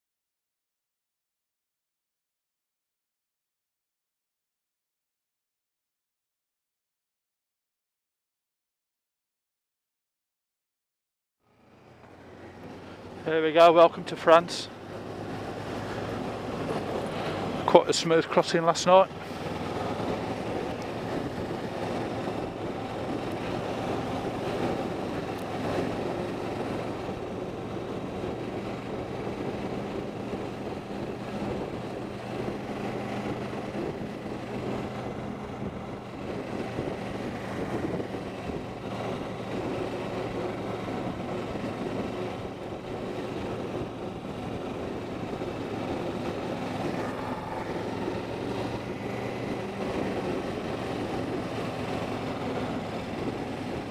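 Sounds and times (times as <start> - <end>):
vehicle engine running steadily: 11.4 - 53.9.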